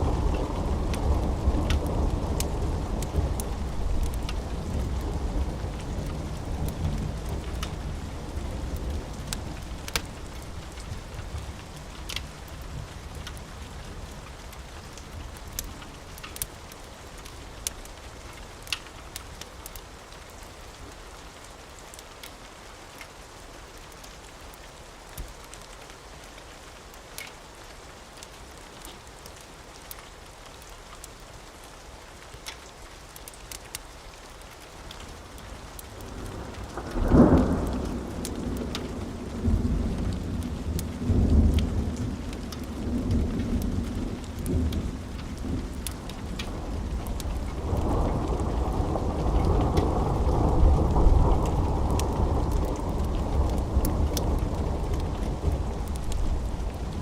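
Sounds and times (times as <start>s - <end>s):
low rumble of thunder: 0.0s - 17.9s, 35.7s - 57.0s
steady rain: 0.0s - 57.0s
wood fire crackling: 0.0s - 57.0s.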